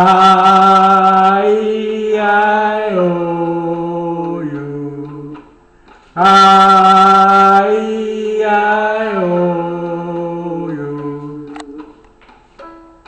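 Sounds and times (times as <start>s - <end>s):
man singing held vowels: 0.0s - 12.7s.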